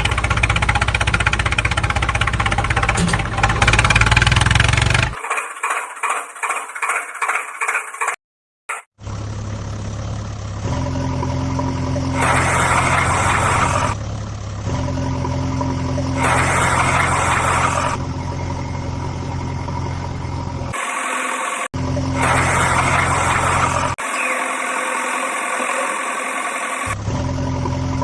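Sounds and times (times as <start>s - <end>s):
vehicle engine running: 0.0s - 8.1s, 9.0s - 20.8s, 21.7s - 24.0s, 26.8s - 28.0s.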